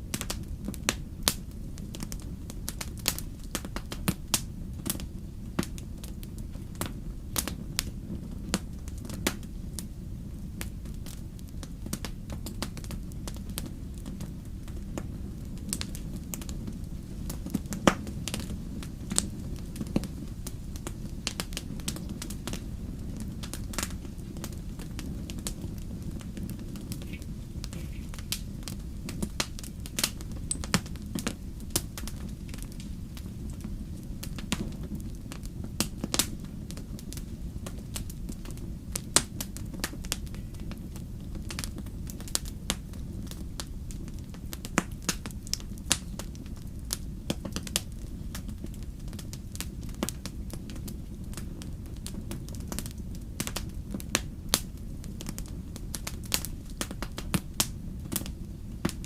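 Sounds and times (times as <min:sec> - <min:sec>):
fire crackling: 0:00.0 - 0:59.0
sharp snaps and pops: 0:23.4 - 0:33.6.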